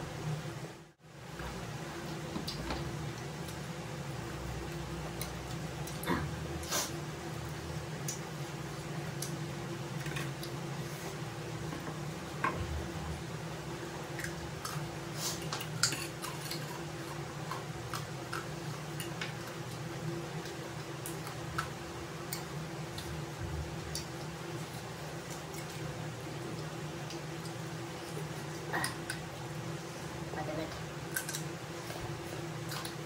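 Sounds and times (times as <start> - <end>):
steady low hum: 0.0 - 33.0
people chewing food: 1.3 - 33.0.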